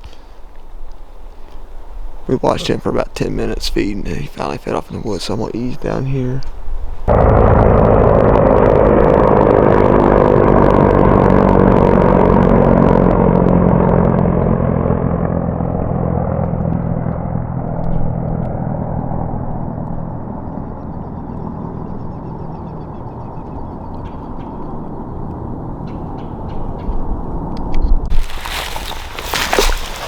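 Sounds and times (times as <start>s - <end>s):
crackling road noise: 0.0s - 30.0s
vehicle engine running: 7.0s - 29.7s.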